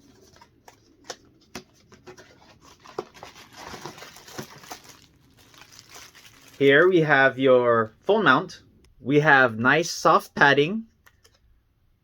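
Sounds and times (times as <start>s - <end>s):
packaging rustling: 0.0s - 6.9s.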